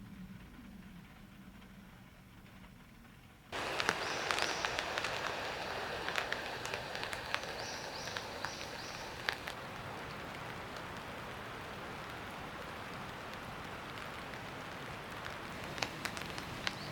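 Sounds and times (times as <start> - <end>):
rain pattering: 0.0 - 16.9.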